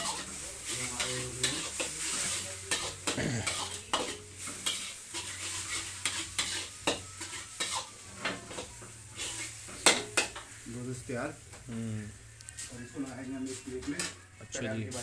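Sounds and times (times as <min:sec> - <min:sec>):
utensil scraping a pan: 0:00.0 - 0:10.4
light sizzle: 0:00.0 - 0:15.0.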